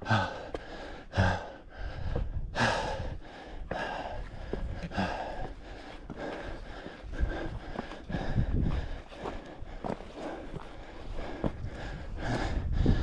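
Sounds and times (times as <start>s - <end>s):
man breathing hard: 0.0s - 13.0s.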